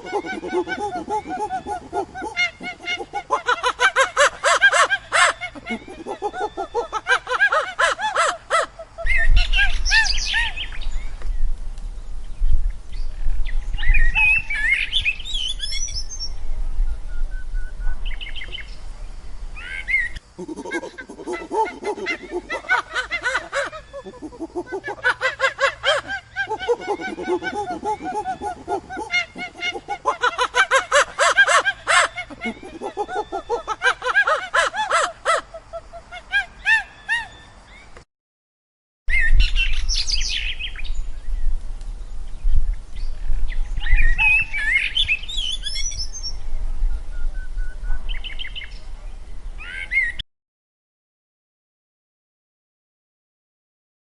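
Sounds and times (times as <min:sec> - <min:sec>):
high chirping animal calls: 0:00.0 - 0:10.9, 0:19.6 - 0:37.6.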